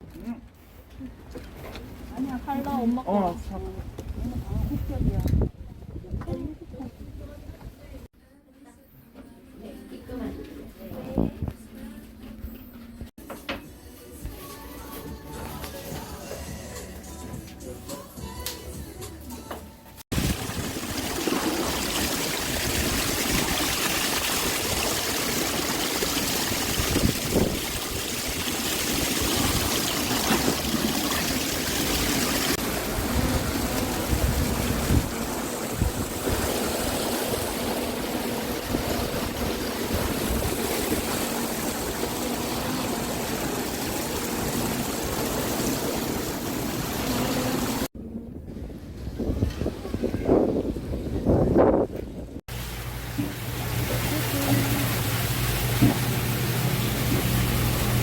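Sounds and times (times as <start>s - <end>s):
rushing water: 20.1s - 47.9s, 52.5s - 58.0s.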